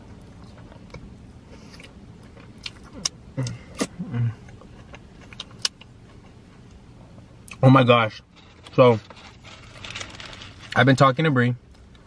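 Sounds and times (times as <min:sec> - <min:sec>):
wet chewing and lip-smacking: 0:00.2 - 0:06.8.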